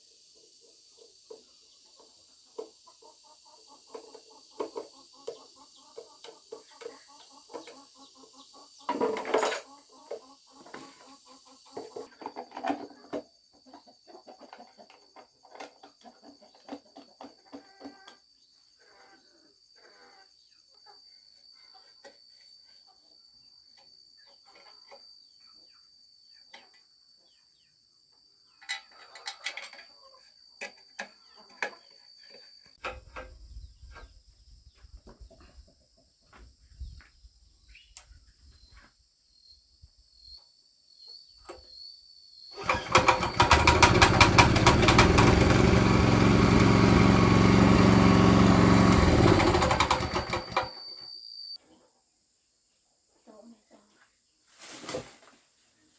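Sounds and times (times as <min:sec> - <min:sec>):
small engine running: 0:42.6 - 0:50.9
high-pitched insect trill: 0:50.7 - 0:51.6.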